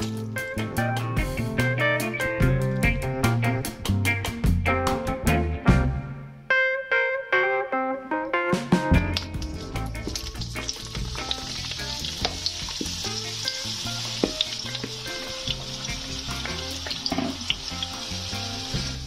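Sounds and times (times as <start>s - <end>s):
oil crackling and popping: 9.0s - 19.0s
vegetables sizzling in oil: 9.4s - 19.0s.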